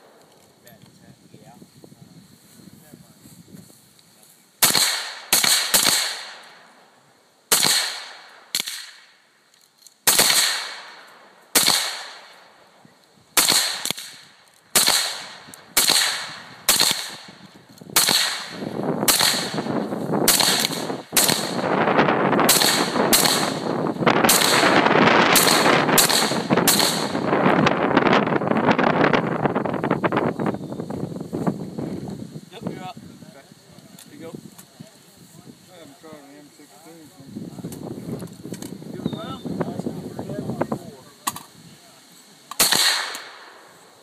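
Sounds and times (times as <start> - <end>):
semi-automatic rifle shots: 4.6 - 6.6, 7.5 - 9.1, 10.0 - 12.4, 13.4 - 21.7, 22.4 - 27.3, 42.5 - 43.7.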